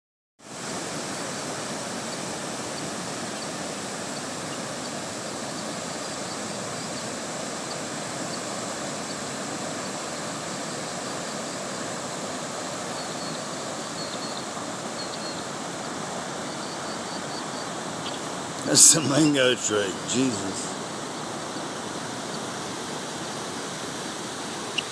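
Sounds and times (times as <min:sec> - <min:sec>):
rushing floodwater: 0:00.5 - 0:24.9.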